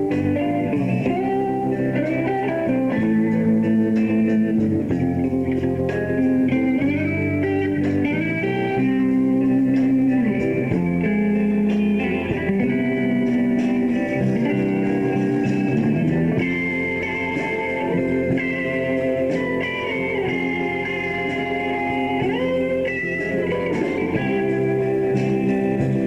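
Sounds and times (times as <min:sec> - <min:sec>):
bass guitar: 0:00.0 - 0:26.0
drums: 0:00.0 - 0:26.0
electric guitar lead bending notes: 0:00.0 - 0:26.0.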